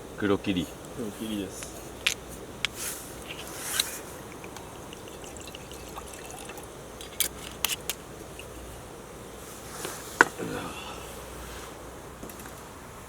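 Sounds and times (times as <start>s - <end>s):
liquid pouring into cup: 3.3s - 8.7s.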